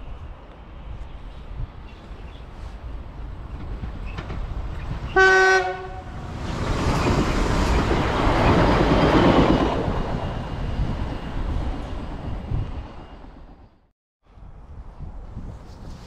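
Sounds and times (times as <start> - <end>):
train rushing past: 2.1 - 13.8
train horn blast: 5.1 - 6.2.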